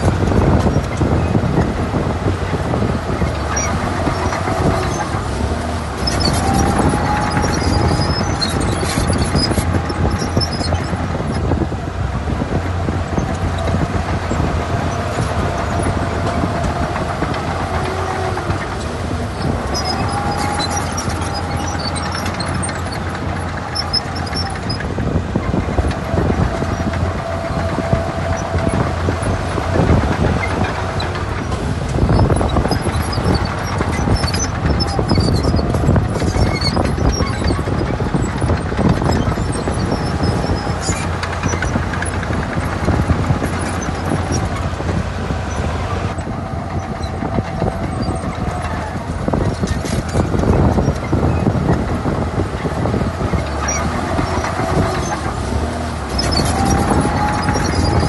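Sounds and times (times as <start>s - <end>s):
heavy diesel machinery running: 0.0s - 58.0s.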